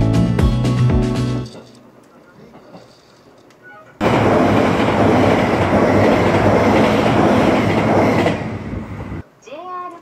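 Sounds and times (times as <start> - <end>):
train wheels rumbling on rail: 4.0 - 9.2.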